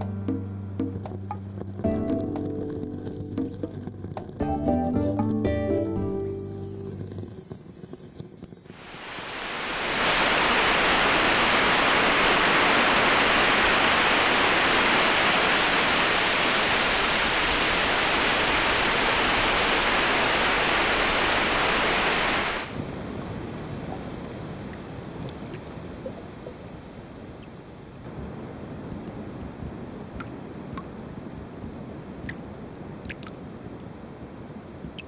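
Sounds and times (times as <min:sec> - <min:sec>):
water rushing over rocks: 0:07.6 - 0:27.4.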